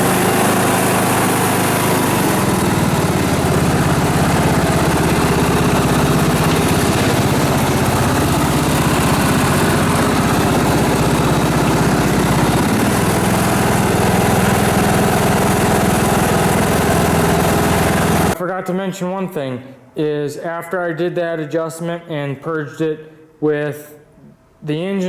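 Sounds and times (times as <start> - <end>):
small engine idling: 0.0 - 18.4.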